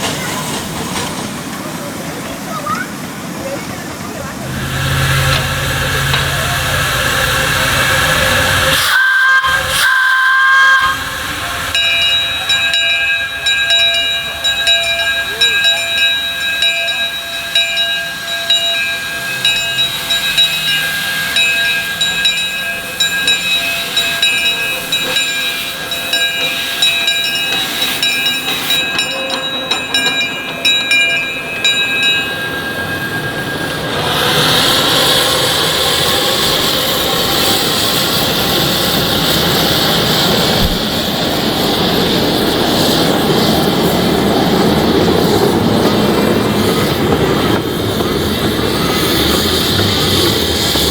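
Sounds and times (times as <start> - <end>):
miniature steam train running: 0.0 - 50.9
steam hissing: 0.0 - 50.9
loud rushing noise: 4.2 - 9.8
steady high tones: 4.2 - 45.4.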